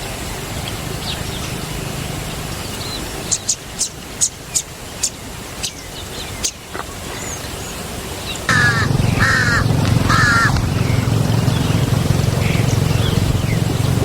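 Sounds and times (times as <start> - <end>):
bird harsh caw-like calls: 8.5 - 11.7
low hum: 8.5 - 14.0.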